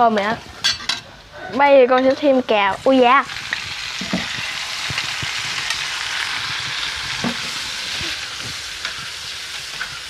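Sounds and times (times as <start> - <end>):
garlic sizzling in butter: 2.4 - 10.0.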